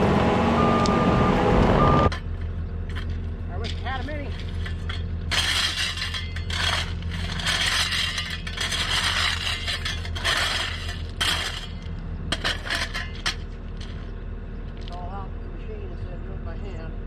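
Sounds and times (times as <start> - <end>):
diesel engine running: 0.0 - 17.0
steel blade scraping gravel: 2.1 - 14.2.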